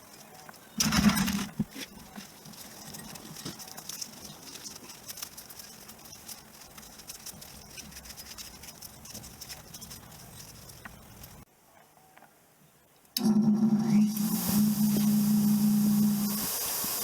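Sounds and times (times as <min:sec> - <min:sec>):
brush scrubbing metal: 0:14.2 - 0:17.0.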